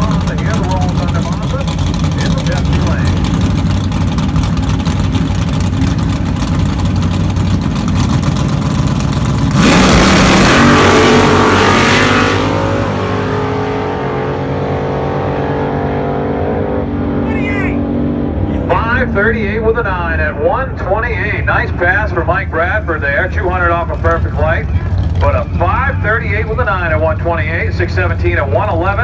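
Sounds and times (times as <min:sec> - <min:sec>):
cars launching at full throttle: 0:00.0 - 0:20.1
drag race cars engine rumble: 0:00.0 - 0:29.0.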